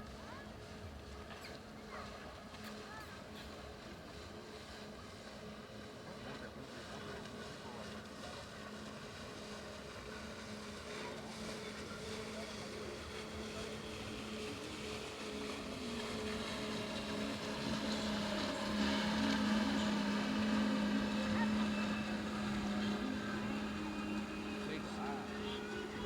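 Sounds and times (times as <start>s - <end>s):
engine humming: 6.4s - 26.0s.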